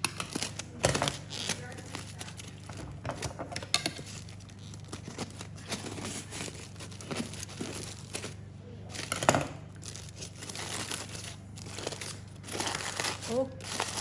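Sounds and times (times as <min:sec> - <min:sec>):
aluminium foil crinkling and tearing: 0:00.0 - 0:14.0.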